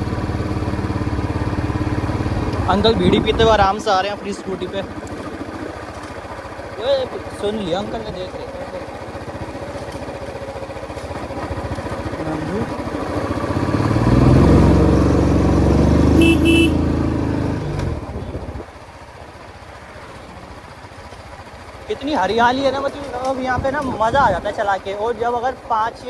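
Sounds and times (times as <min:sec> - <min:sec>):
motorcycle engine and exhaust: 0:00.0 - 0:26.0
horn short beeps: 0:16.1 - 0:16.9.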